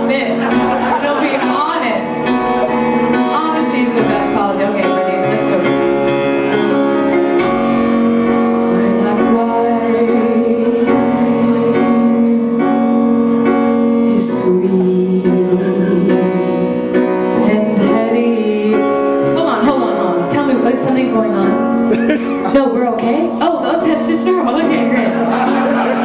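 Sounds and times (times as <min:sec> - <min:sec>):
piano accompaniment: 0:00.0 - 0:26.0
person singing long wavering notes: 0:08.6 - 0:12.9.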